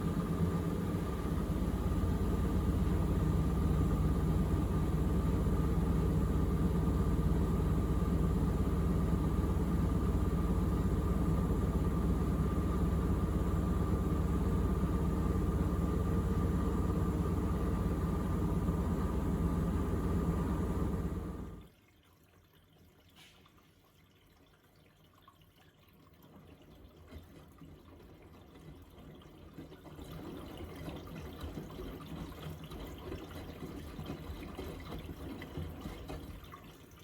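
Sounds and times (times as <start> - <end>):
washing machine spinning: 0.0 - 21.6.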